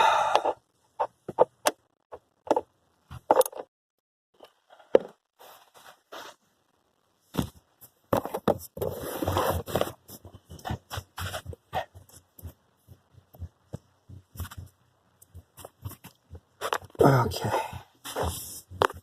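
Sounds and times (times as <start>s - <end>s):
rustling and scraping: 4.4s - 6.6s, 7.2s - 19.0s.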